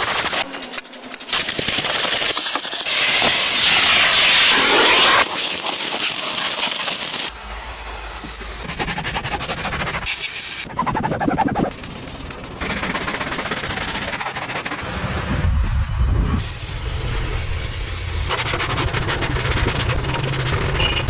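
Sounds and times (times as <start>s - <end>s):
spray jet hissing: 0.0s - 10.6s, 16.4s - 21.0s.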